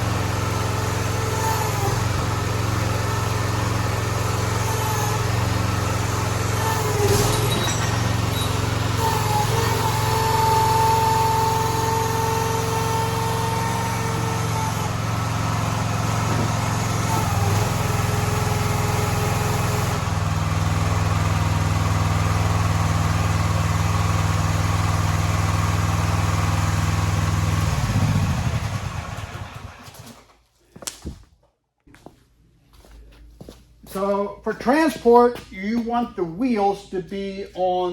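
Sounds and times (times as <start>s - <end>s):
small gasoline engine running: 0.0s - 30.2s.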